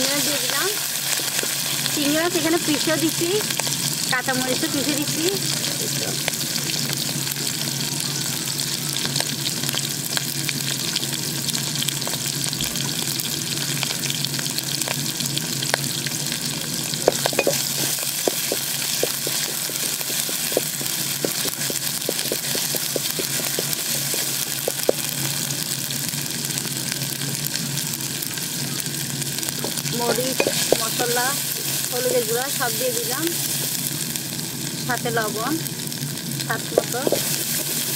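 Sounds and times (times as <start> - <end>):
paste sizzling in oil: 0.0 - 37.9
wooden spatula scraping a pot: 17.1 - 25.0, 36.8 - 37.9.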